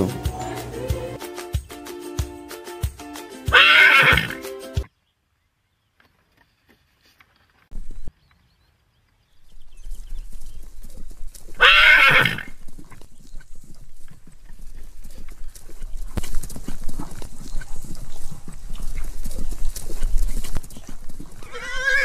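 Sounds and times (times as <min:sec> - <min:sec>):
horse neighing: 0:03.5 - 0:04.4, 0:11.6 - 0:12.6, 0:21.4 - 0:22.0.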